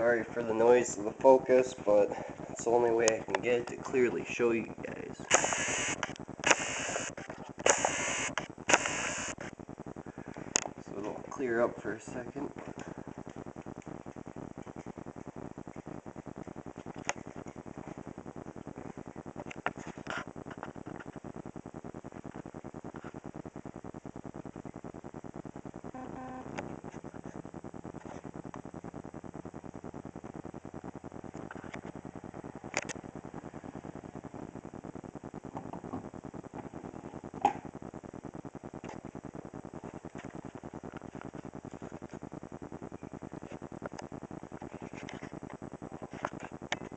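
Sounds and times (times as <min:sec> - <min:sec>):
autofocus motor pulsing: 0:05.3 - 0:09.5
sharp camera clicks: 0:05.3 - 0:09.5.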